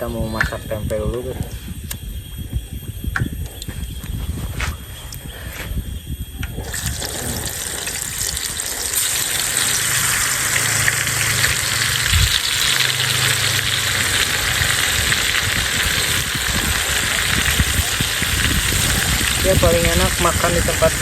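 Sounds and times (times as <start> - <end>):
food sizzling in hot oil: 6.6 - 21.0.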